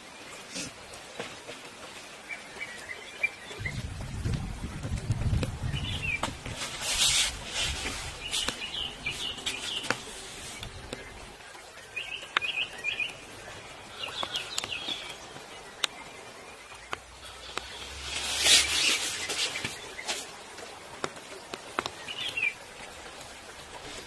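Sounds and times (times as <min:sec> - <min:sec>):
rustling: 0:03.8 - 0:11.4, 0:16.9 - 0:20.7
bird chirping: 0:08.2 - 0:20.2.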